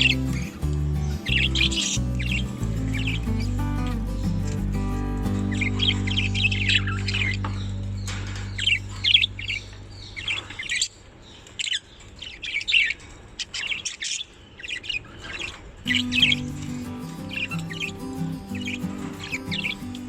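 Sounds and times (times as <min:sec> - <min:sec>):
budgerigars chirping: 0:00.0 - 0:04.6, 0:05.4 - 0:20.0
background music: 0:00.0 - 0:09.6, 0:15.9 - 0:20.0.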